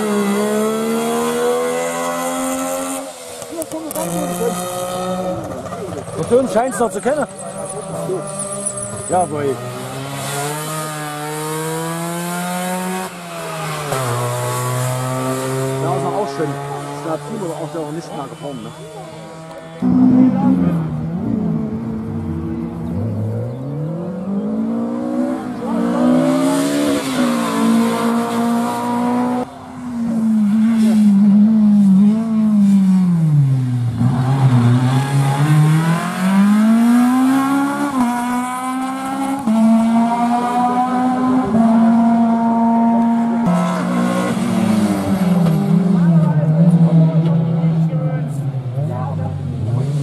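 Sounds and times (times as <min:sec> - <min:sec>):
rally car engine accelerating: 0:00.0 - 0:50.0.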